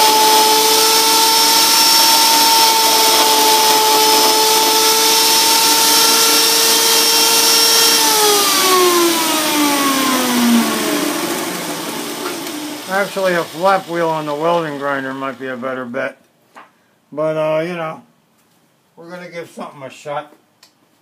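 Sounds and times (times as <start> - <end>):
electric motor whine: 0.0 - 15.5.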